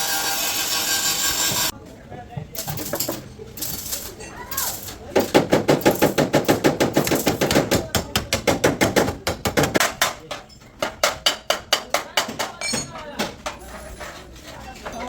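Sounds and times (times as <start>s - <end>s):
hammer beating on sheet steel: 5.2s - 13.6s.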